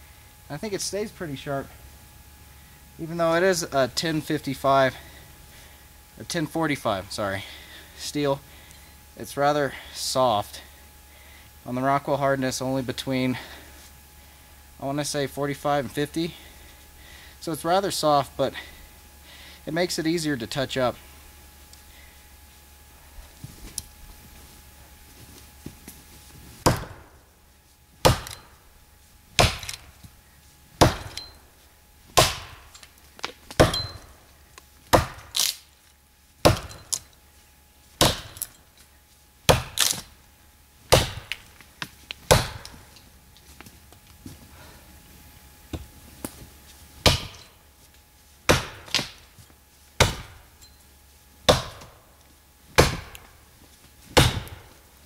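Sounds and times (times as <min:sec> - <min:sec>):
axe chopping into tree trunk: 0:26.6 - 0:27.1, 0:28.0 - 0:28.5, 0:29.4 - 0:29.9, 0:30.8 - 0:31.4, 0:32.2 - 0:32.7, 0:33.5 - 0:34.0, 0:34.9 - 0:35.5, 0:36.4 - 0:37.0, 0:38.0 - 0:38.5, 0:39.5 - 0:40.1, 0:40.9 - 0:41.4, 0:42.3 - 0:42.8, 0:47.0 - 0:47.5, 0:48.5 - 0:49.2, 0:50.0 - 0:50.4, 0:51.4 - 0:52.0, 0:52.7 - 0:53.2, 0:54.2 - 0:54.7.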